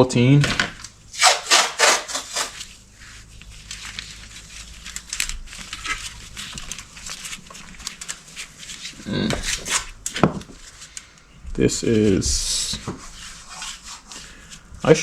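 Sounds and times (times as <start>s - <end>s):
packaging crinkling and rustling: 0.6s - 15.0s.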